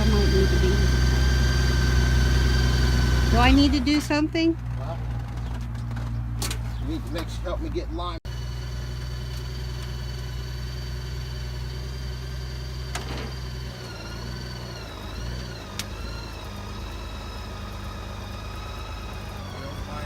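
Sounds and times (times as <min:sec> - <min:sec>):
motorcycle engine idling: 0:00.0 - 0:13.8.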